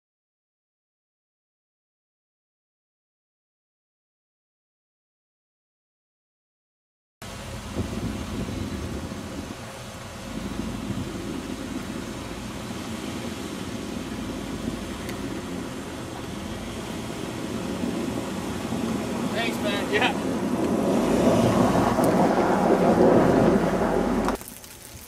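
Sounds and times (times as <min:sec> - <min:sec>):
car engine running at low revs: 0:07.2 - 0:24.4.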